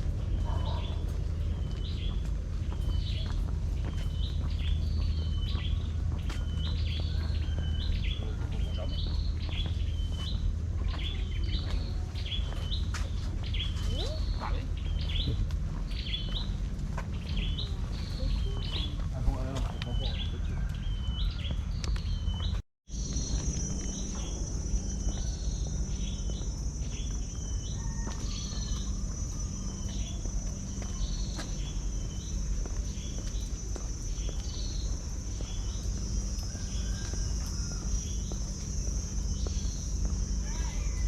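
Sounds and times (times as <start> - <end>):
low rumble: 0.0 - 41.0
high insect drone: 22.9 - 41.0.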